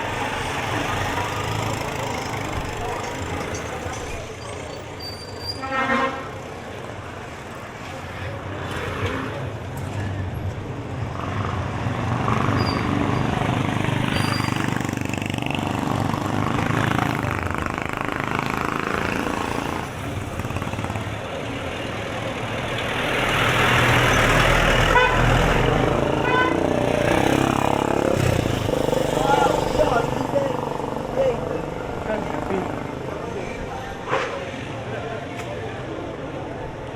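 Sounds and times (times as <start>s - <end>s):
passing vehicle traffic: 0.0s - 5.0s, 5.6s - 36.9s
voices of people: 0.0s - 11.0s, 24.8s - 36.9s.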